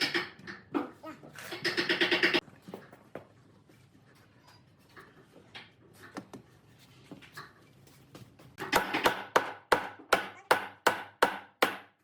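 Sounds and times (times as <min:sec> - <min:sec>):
sharp strikes on wood: 0:08.6 - 0:12.0.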